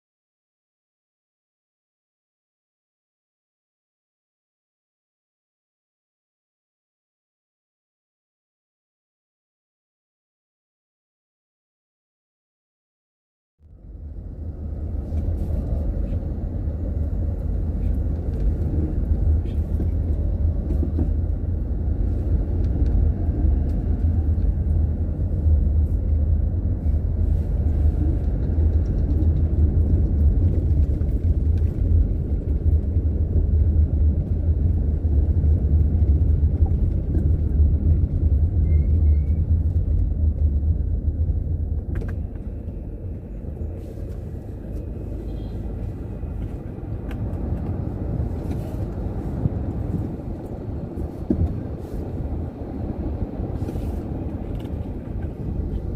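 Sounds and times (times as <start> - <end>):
car engine and road noise: 13.6 - 55.9.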